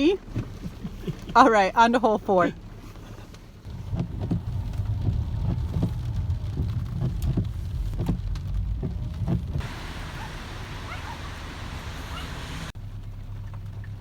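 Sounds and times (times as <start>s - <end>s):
rain ticking on car: 0.0s - 14.0s
road and engine rumble: 0.0s - 14.0s
rain hissing: 3.6s - 14.0s.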